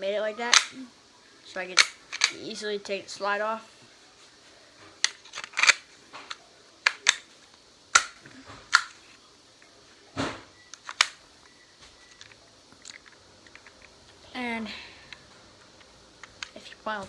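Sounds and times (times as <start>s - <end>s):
pistol slide clicks and clacks: 1.8s - 2.4s, 5.0s - 7.2s.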